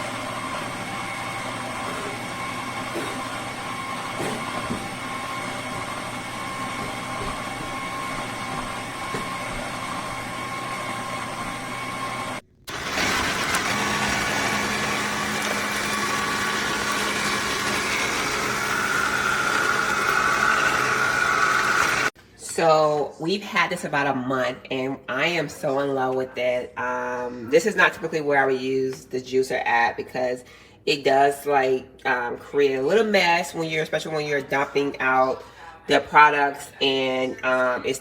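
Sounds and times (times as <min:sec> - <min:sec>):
juicer motor humming: 0:00.0 - 0:22.2.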